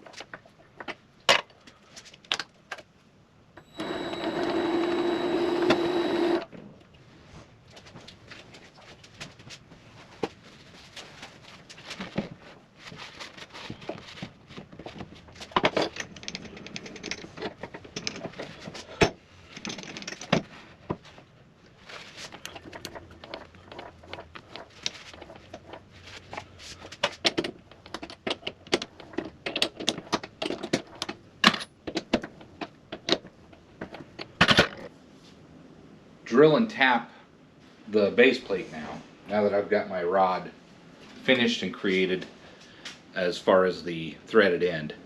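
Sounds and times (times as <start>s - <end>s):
rustling: 6.5s - 29.4s.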